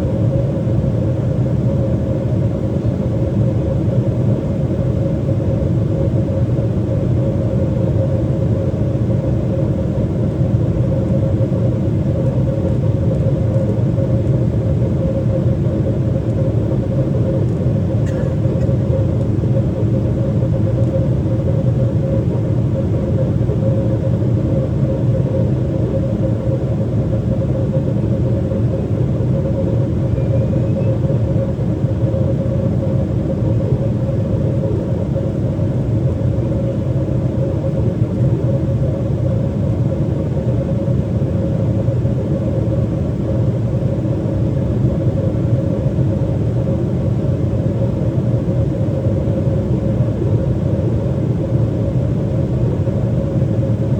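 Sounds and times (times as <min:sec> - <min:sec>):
airplane cabin engine rumble: 0:00.0 - 0:53.9
constant hum: 0:00.0 - 0:53.9.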